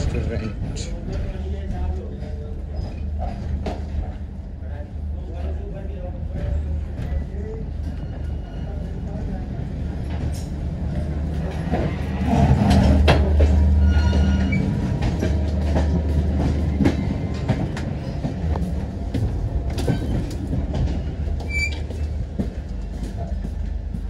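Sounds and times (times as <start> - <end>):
train rumble: 0.0 - 24.0
wheel clatter over rail joints: 5.3 - 24.0.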